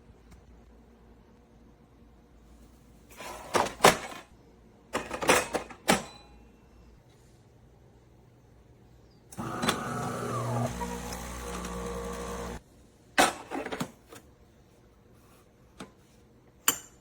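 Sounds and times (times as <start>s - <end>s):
espresso machine motor running: 9.4s - 12.6s.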